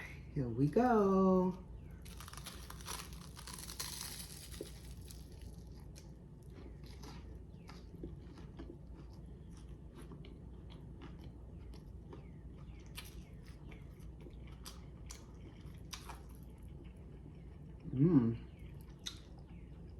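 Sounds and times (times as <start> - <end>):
crunchy chewing: 1.8 - 19.9
sandwich bite crunching: 2.0 - 17.7.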